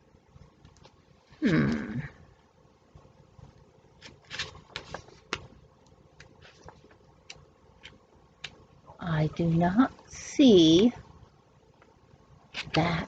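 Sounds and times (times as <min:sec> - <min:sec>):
paper cards rustling: 0:03.9 - 0:08.6, 0:12.5 - 0:13.0.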